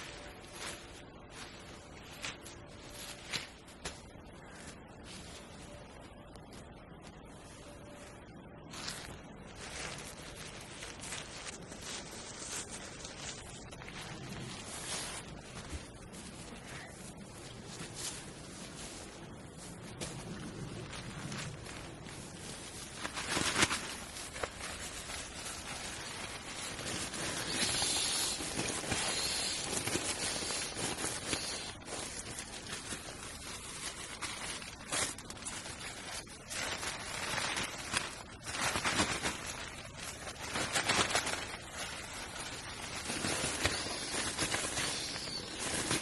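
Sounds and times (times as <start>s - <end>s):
rustling and scuffing: 0.0s - 46.0s.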